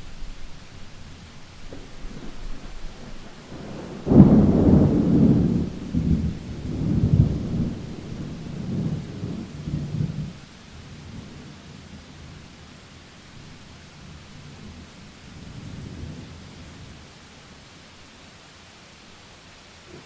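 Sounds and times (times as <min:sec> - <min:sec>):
thunder rumbling: 0:00.0 - 0:10.4
rain hiss: 0:00.0 - 0:20.0.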